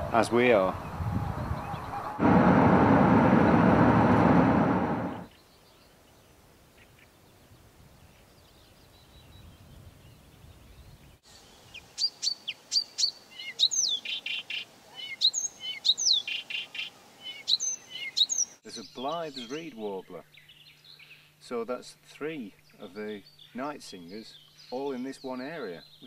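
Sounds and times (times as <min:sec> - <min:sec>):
loud dense wash of noise: 0:02.2 - 0:05.3
warbler singing: 0:08.0 - 0:21.5, 0:22.3 - 0:26.0.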